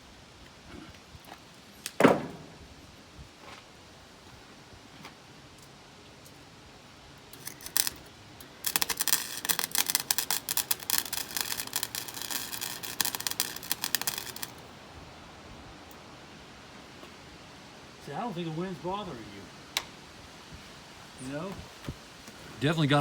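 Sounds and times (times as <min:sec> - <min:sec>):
arc welder crackling: 0:05.6 - 0:15.0.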